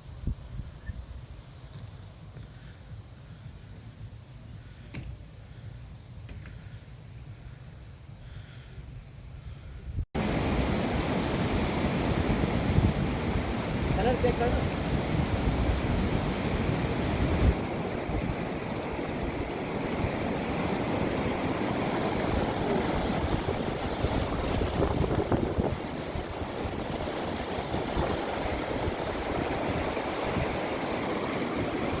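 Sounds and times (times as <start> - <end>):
wind rumble on microphone: 0.0 - 5.9, 9.4 - 32.0
water rushing: 10.2 - 32.0.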